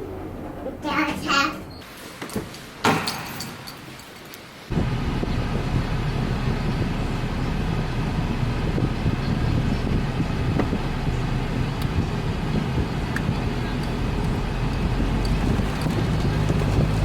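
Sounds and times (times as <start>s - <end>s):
car engine and road noise: 4.7s - 17.0s.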